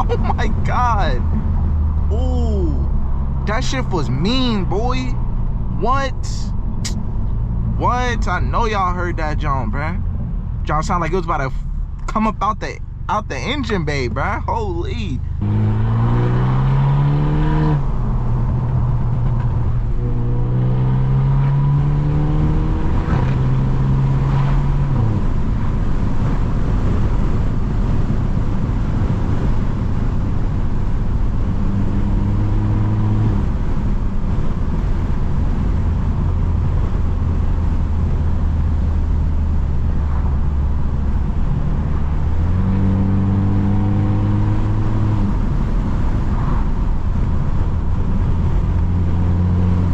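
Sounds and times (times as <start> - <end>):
car exhaust accelerating hard: 0.0 - 49.9.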